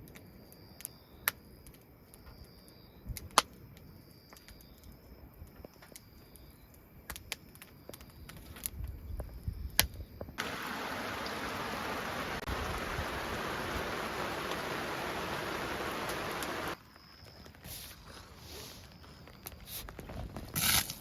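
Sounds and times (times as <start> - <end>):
heavy rain: 10.4 - 16.8.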